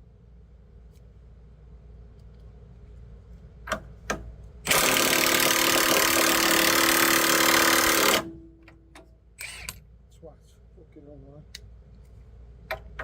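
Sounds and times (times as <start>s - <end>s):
power tool running loudly: 4.7s - 8.3s.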